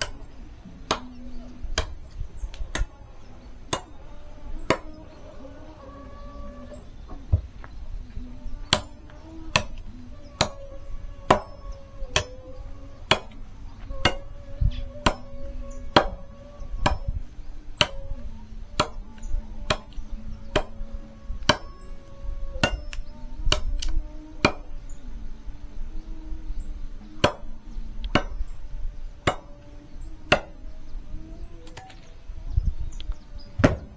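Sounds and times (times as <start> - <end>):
axe chopping firewood: 0.0 - 0.2, 0.8 - 2.9, 3.7 - 4.0, 4.6 - 4.9, 8.7 - 10.6, 11.3 - 12.3, 13.1 - 13.4, 14.0 - 14.3, 15.0 - 15.3, 15.9 - 16.2, 16.8 - 17.2, 17.8 - 18.1, 18.8 - 19.0, 19.7 - 20.8, 21.4 - 21.7, 22.6 - 24.7, 27.2 - 27.5, 28.1 - 28.4, 29.2 - 29.5, 30.3 - 30.6, 33.6 - 33.9.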